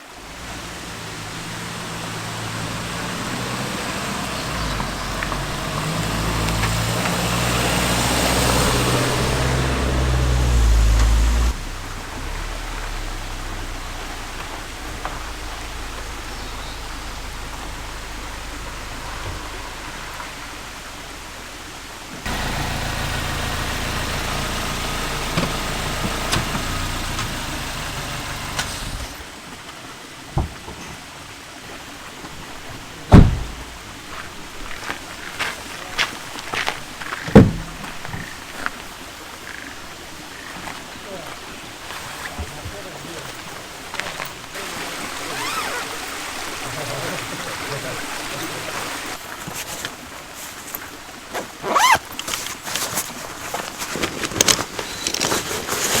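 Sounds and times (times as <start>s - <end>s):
car engine shifting gears: 0.0s - 29.4s, 33.1s - 34.0s, 35.8s - 39.0s, 41.3s - 49.2s
road and tyre noise: 0.0s - 56.0s.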